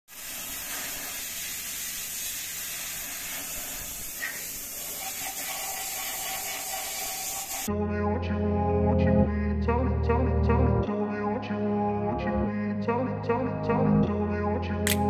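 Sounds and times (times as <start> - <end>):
steady hissing noise: 0.1 - 7.7.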